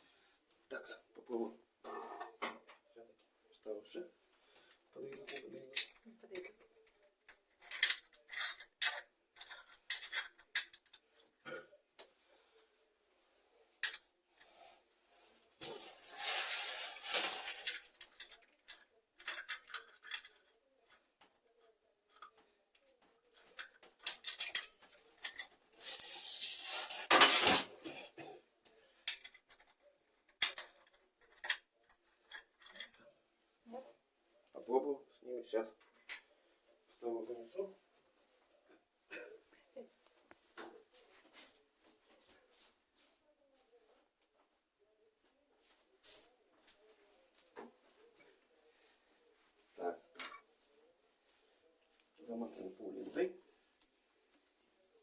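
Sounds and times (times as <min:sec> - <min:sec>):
metal parts clinking: 0:05.1 - 0:11.0, 0:15.6 - 0:20.5, 0:23.4 - 0:27.7, 0:29.0 - 0:33.0.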